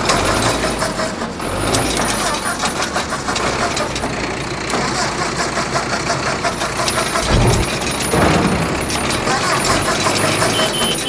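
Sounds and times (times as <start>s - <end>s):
vehicle engine running: 0.0s - 11.0s
short low thump: 7.2s - 8.9s.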